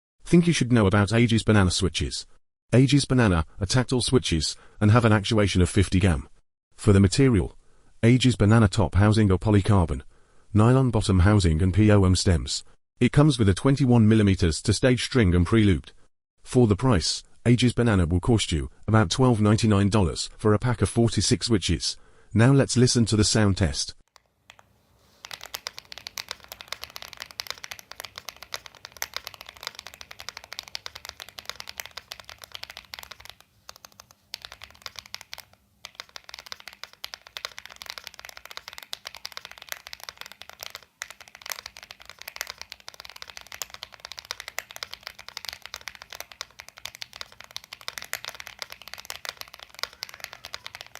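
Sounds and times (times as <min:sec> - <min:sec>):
mechanical keyboard typing: 0:24.1 - 0:50.9.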